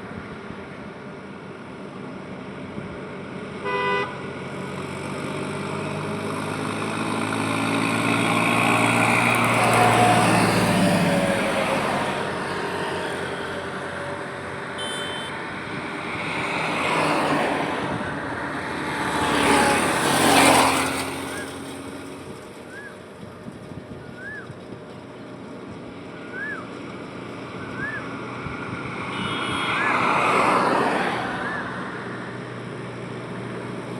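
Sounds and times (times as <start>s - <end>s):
traffic passing: 0.0s - 33.9s
car horn toot: 3.6s - 4.2s, 14.8s - 15.4s, 29.0s - 30.3s
heavy vehicle engine passing: 4.2s - 33.9s
high-pitched horn: 14.8s - 15.4s, 29.0s - 30.4s.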